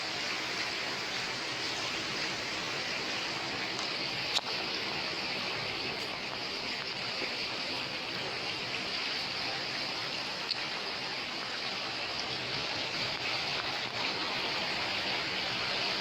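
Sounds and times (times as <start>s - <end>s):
water rushing: 0.0s - 16.0s.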